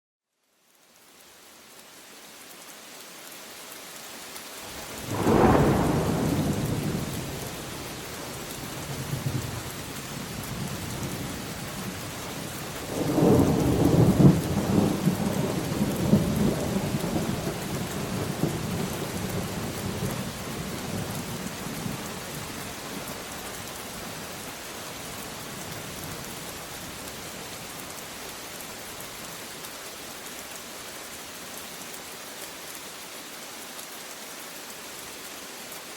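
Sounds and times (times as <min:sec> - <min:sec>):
steady rain: 0:00.3 - 0:35.9
thunder claps: 0:05.0 - 0:07.4.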